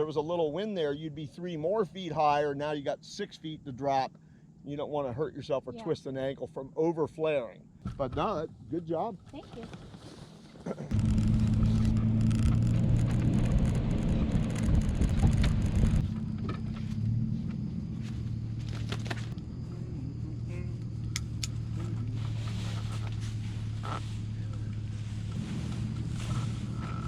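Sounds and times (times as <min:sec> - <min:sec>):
truck engine humming: 0:10.9 - 0:27.0.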